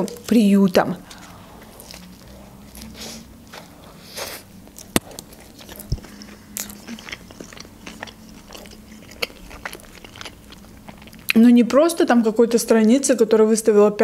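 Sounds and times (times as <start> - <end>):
wet chewing crunches: 0.0 - 11.5
biting into a hot dog: 1.0 - 11.4.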